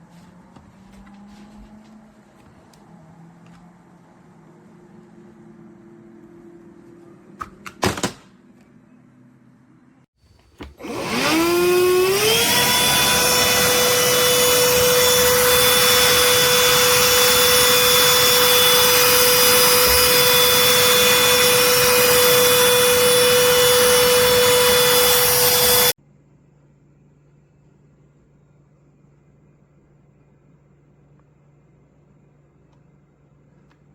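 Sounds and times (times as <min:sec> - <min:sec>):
handheld vacuum motor whine: 0:10.4 - 0:26.0.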